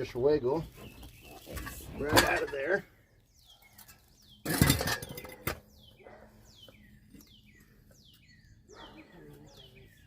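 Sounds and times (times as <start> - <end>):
small bird chirping: 0.0 - 10.0
metal scraping and clattering: 1.2 - 2.9, 3.8 - 5.7.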